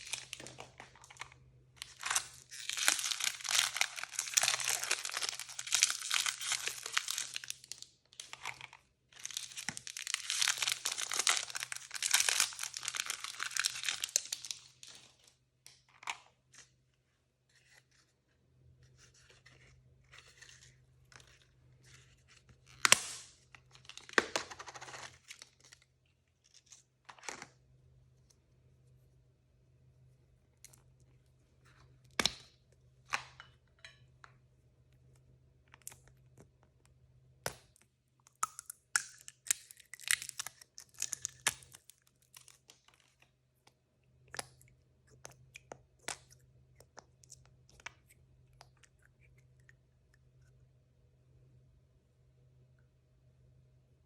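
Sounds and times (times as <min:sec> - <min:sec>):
plastic crinkling: 0:00.0 - 0:15.3
packaging tearing and rustling: 0:01.8 - 0:14.9.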